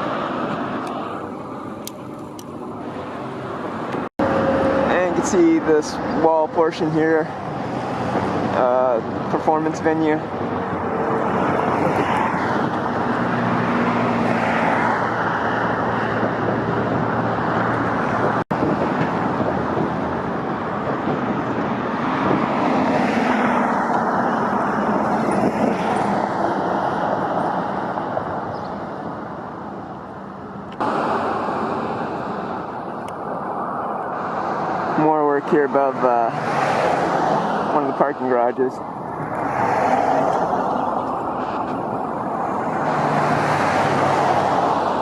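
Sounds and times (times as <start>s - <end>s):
passing cars rushing: 0.0s - 45.0s.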